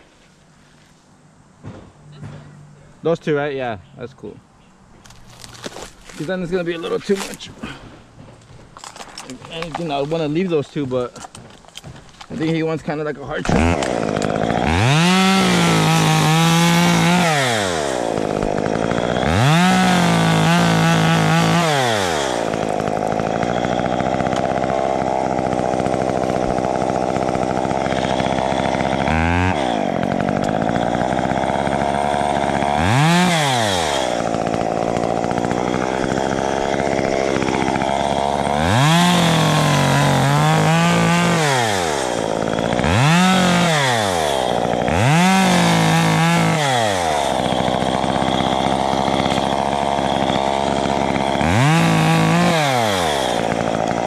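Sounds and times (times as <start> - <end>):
chainsaw revving: 11.4 - 54.0.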